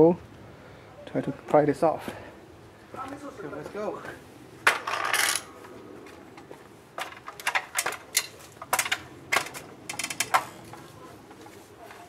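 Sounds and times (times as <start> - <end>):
sharp irregular clicks and knocks: 7.0 - 10.8.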